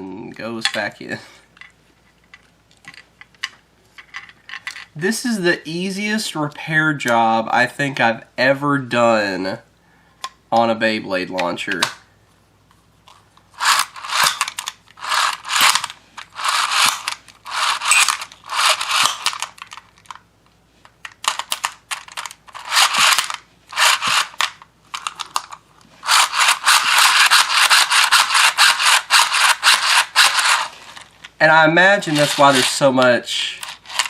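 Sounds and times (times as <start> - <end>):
launcher cord ratcheting whir: 13.5 - 20.2, 21.1 - 31.3, 32.0 - 32.9, 33.6 - 34.0.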